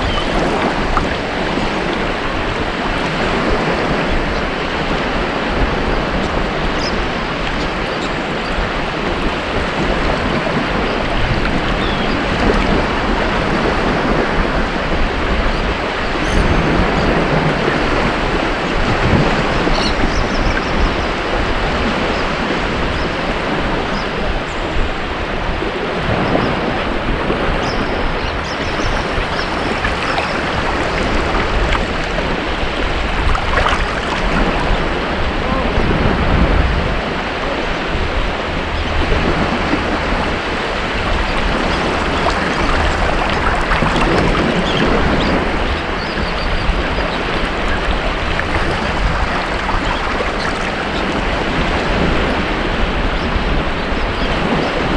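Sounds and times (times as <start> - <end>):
waves breaking on beach: 0.0 - 16.0, 25.2 - 36.3, 39.0 - 53.5.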